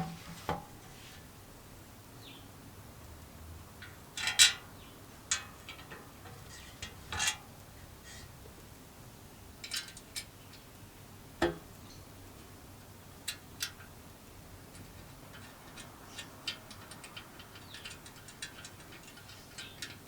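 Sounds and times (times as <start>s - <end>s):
metal parts clinking: 14.7s - 20.0s.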